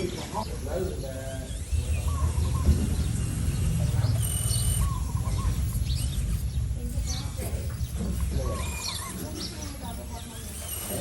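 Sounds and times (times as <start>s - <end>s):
birds chirping: 0.0s - 11.0s
steady low rumble: 0.4s - 10.3s.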